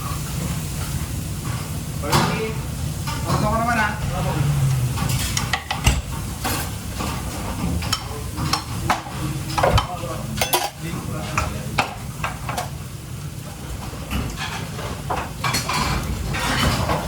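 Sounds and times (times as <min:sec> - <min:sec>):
frying hiss: 0:00.0 - 0:17.0
metal utensils and pans clinking: 0:04.8 - 0:11.9, 0:14.1 - 0:17.0.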